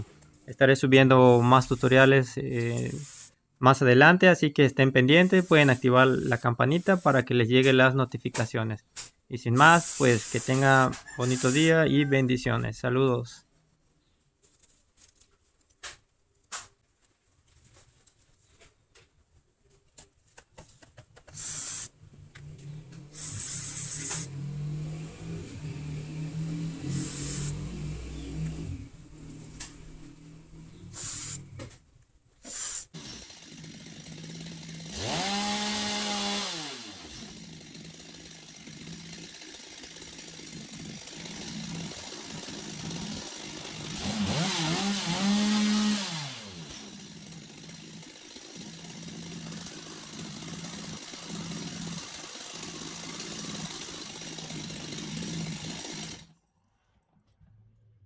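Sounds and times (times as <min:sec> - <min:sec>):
chainsaw engine idling and revving: 0:22.2 - 0:30.8, 0:32.9 - 0:56.3.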